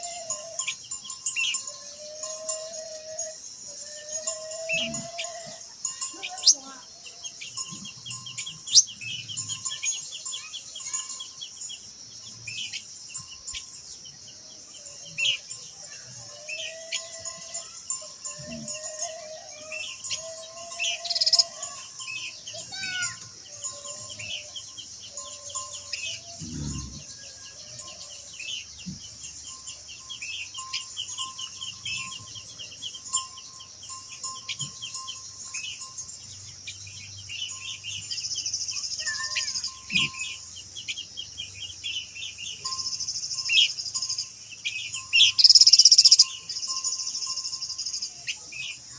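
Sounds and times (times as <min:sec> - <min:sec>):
birds chirping and whistling: 0:00.0 - 0:48.9
high insect hiss: 0:00.0 - 0:48.9.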